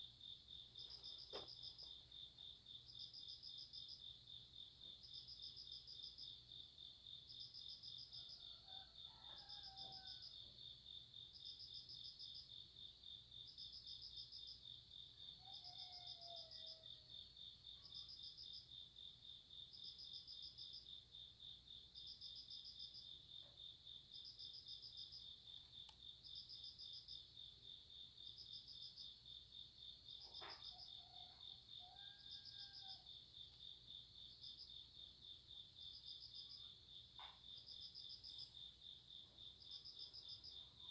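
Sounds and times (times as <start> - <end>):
cricket trill: 11.4 - 40.9.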